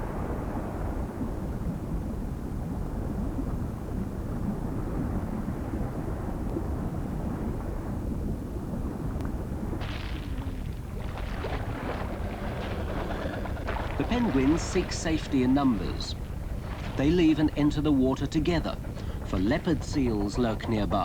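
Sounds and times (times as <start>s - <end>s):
wind and sea rumble: 0.0s - 21.0s.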